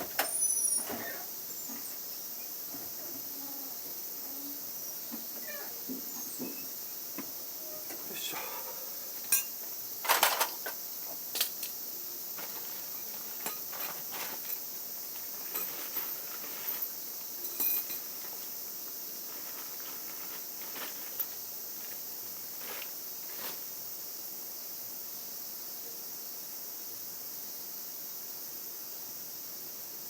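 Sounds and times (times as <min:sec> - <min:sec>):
steady high hiss: 0:00.0 - 0:30.0
metal tool clinks and knocks: 0:17.4 - 0:18.1.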